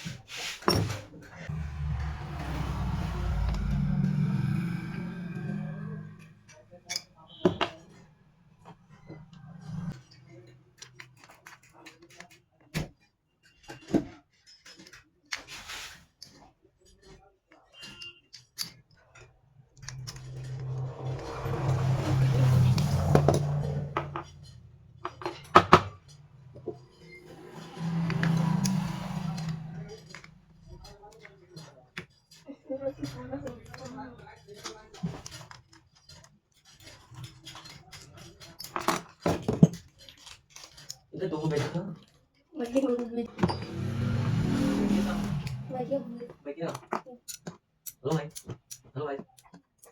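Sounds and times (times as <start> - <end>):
short rasping scrape: 1.5 - 6.7, 19.8 - 30.9, 43.2 - 46.3
small metal parts clicking: 34.5 - 41.1.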